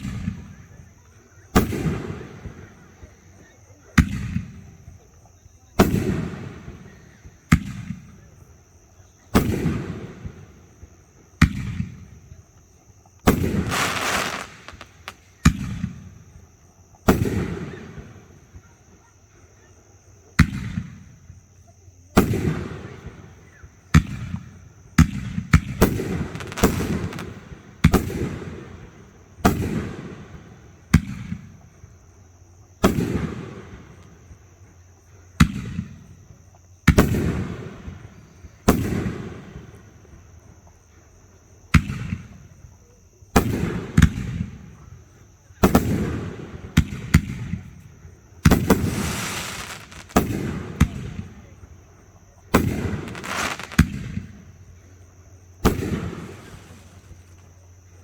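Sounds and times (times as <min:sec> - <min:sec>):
fireworks booming: 0:00.0 - 0:03.2, 0:13.2 - 0:18.6, 0:22.1 - 0:31.7, 0:36.9 - 0:40.5, 0:48.4 - 0:57.8
fireworks crackling: 0:13.2 - 0:16.1, 0:25.0 - 0:28.8, 0:48.4 - 0:51.6, 0:52.5 - 0:54.6, 0:55.6 - 0:57.5.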